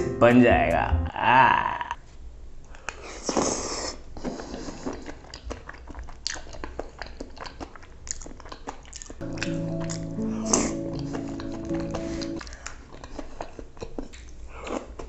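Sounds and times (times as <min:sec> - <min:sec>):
wet chewing with clicks: 0:04.2 - 0:15.0.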